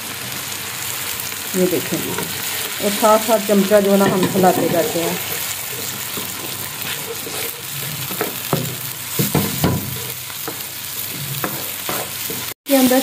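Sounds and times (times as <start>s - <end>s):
eggs and vegetables sizzling: 0.0s - 13.0s
spatula scraping and tapping pan: 3.9s - 12.6s.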